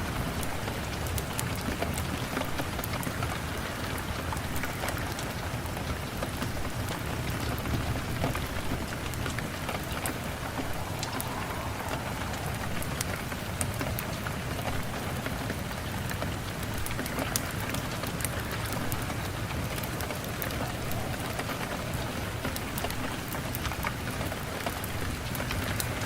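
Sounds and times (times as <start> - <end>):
rain pattering: 0.0 - 26.0
wood fire crackling: 8.4 - 14.4.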